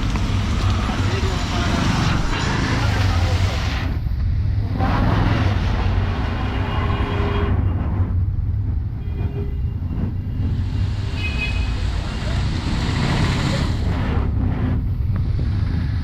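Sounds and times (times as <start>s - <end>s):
rain hiss: 0.0s - 4.0s
road traffic rumble: 0.0s - 16.0s.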